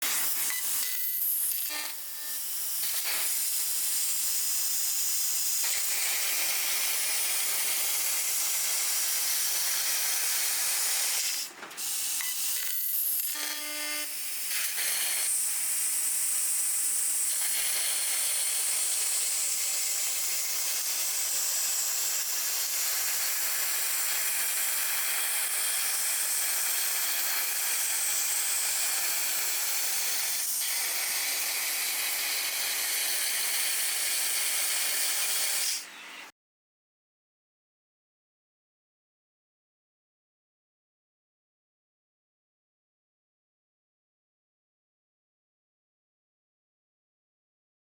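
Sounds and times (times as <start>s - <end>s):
laser cutter jet hissing: 0.0s - 35.9s.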